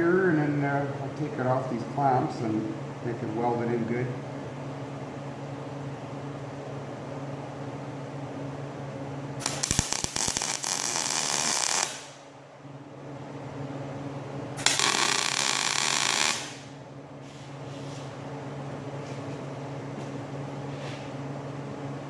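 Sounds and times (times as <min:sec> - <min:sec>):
steady electrical hum: 0:00.0 - 0:22.0
arc welder crackling: 0:09.4 - 0:12.4, 0:14.6 - 0:16.8.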